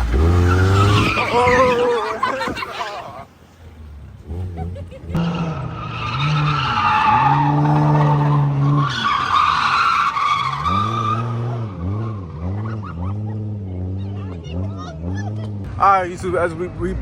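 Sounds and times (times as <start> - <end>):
car engine revving: 0.0 - 2.6, 3.6 - 17.0
car tyres squealing: 0.0 - 3.4, 4.2 - 15.7.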